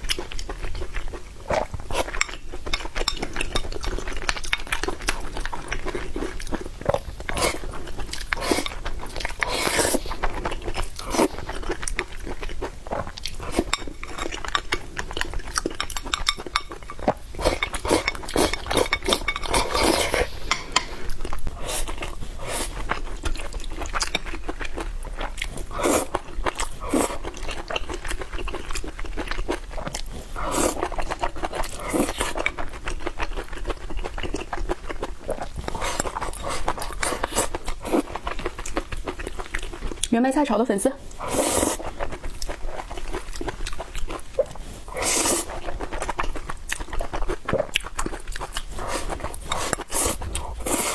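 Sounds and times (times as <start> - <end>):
chewing and biting food: 0.0 - 40.1, 41.1 - 50.9
utensils clinking on dishes: 2.0 - 3.8, 15.7 - 21.1.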